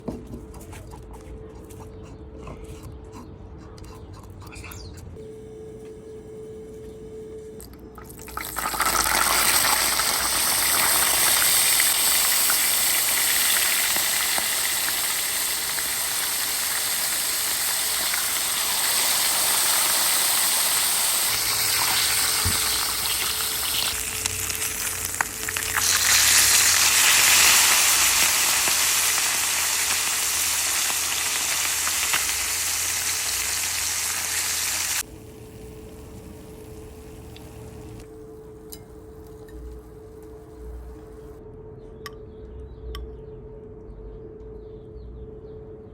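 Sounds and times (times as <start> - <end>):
fish sizzling while frying: 8.2 - 38.0.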